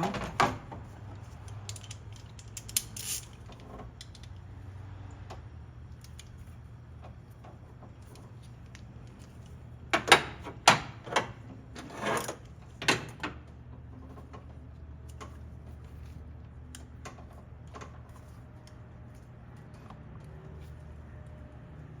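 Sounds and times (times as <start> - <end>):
metallic tool clicks: 1.4 - 3.4.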